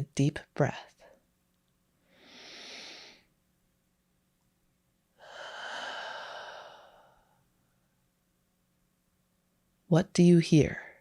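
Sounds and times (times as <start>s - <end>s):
person breathing in: 2.0s - 3.3s, 5.2s - 7.4s
person breathing out: 2.1s - 3.3s, 5.2s - 7.4s.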